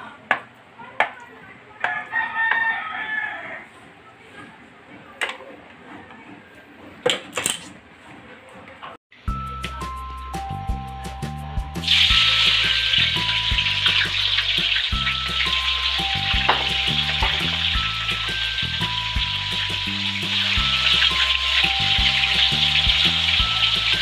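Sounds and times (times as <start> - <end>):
tofu deep-frying in oil: 11.8 - 24.0.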